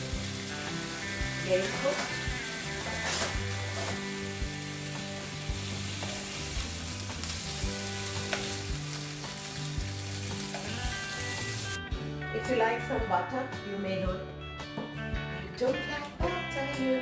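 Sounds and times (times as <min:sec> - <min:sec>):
bacon sizzling in a pan: 0:00.0 - 0:11.8.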